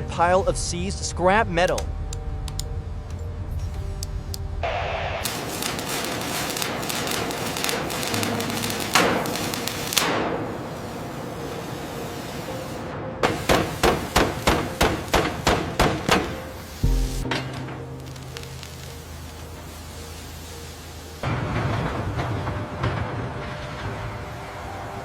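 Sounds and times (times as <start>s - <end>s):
hammer strikes: 13.2s - 18.3s.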